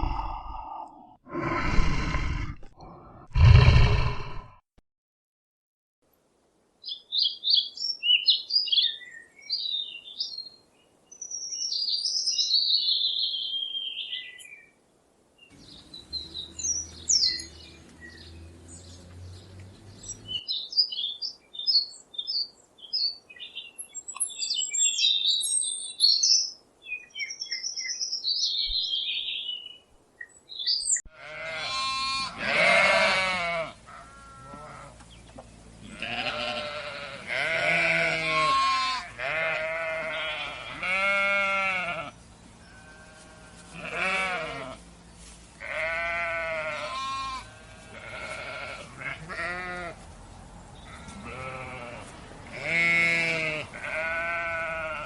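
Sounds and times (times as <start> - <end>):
songbirds chirping: 6.2 - 55.0
loud wavering bleat: 31.1 - 35.0, 35.8 - 44.8, 45.6 - 50.0, 50.9 - 55.0.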